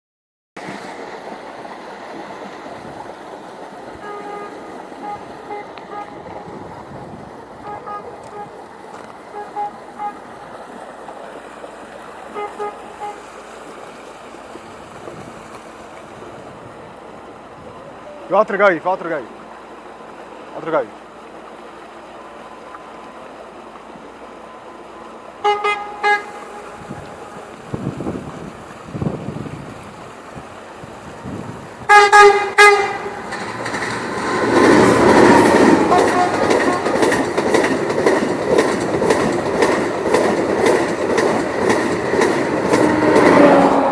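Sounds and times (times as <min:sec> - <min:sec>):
train rumble: 0:00.6 - 0:20.8, 0:21.4 - 0:43.9
distant traffic: 0:00.6 - 0:43.9
wind: 0:00.6 - 0:43.9
train horn blasts: 0:04.0 - 0:06.5, 0:07.6 - 0:08.6, 0:09.3 - 0:10.3, 0:12.3 - 0:13.4, 0:25.4 - 0:27.6, 0:31.9 - 0:33.4, 0:35.0 - 0:37.2, 0:42.6 - 0:43.9.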